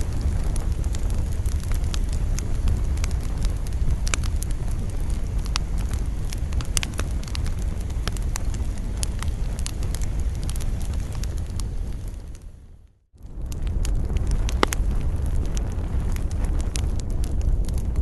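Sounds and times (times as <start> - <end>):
campfire crackling and popping: 0.0 - 18.0
low wind rumble: 0.0 - 18.0.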